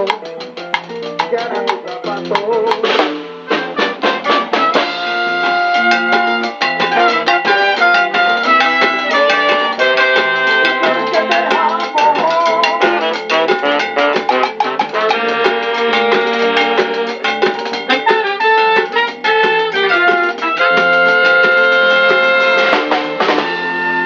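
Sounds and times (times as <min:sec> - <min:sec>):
steady drum beat: 0:00.0 - 0:23.8
guitar melody: 0:00.0 - 0:24.0.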